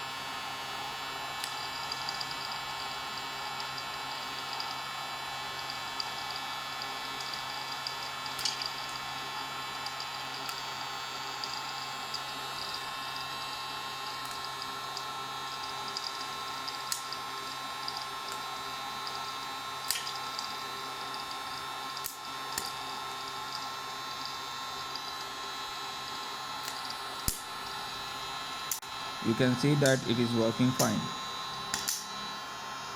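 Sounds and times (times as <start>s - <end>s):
popcorn maker whirring hum: 0.0s - 32.9s
popcorn kernels popping: 6.8s - 9.0s, 19.8s - 20.4s, 31.7s - 32.0s.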